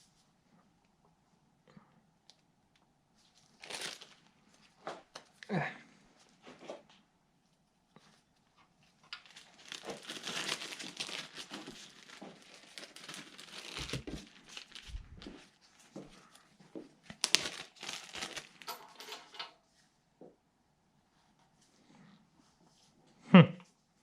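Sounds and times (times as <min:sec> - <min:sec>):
plastic bags crinkling: 0:03.4 - 0:04.4, 0:09.1 - 0:15.5, 0:17.0 - 0:19.4.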